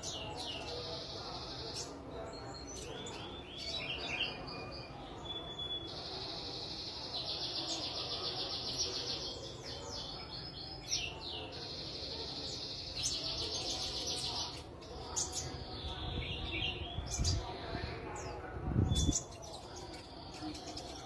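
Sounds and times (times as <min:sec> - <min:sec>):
bird singing high trills: 0:02.5 - 0:07.0.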